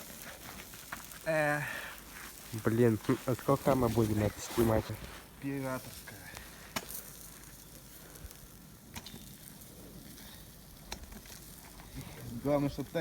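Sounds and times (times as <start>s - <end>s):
campfire crackling: 0.0s - 13.0s
sharp fire pops: 5.7s - 13.0s.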